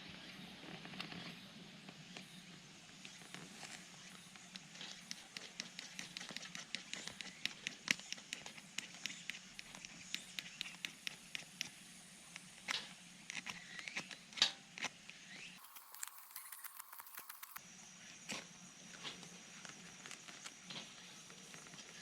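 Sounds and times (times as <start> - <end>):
small clicks and snaps: 3.0 - 17.6.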